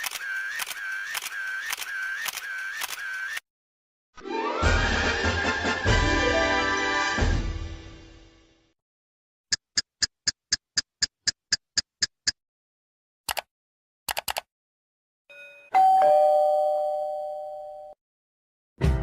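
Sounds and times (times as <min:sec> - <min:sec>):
two-tone doorbell chime: 0:15.3 - 0:18.0.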